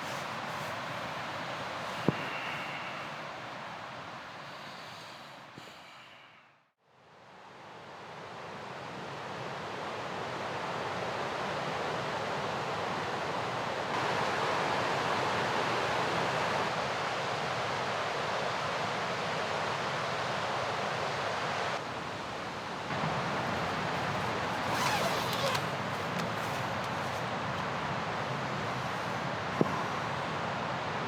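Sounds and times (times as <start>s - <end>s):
river rushing: 21.8s - 31.0s.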